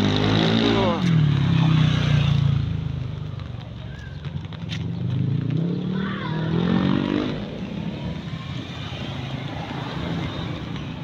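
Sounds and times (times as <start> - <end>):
vehicle engine passing by: 4.3 - 10.9.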